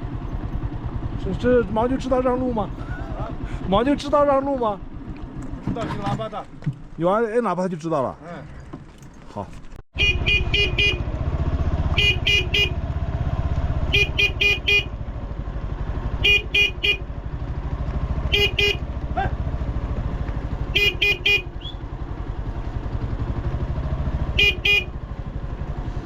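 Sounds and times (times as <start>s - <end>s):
motorcycle engine running: 0.0s - 7.0s, 10.0s - 26.0s
motorcycle horn beeps: 10.0s - 15.1s, 16.1s - 17.2s, 18.1s - 19.0s, 20.6s - 22.0s, 24.2s - 25.1s.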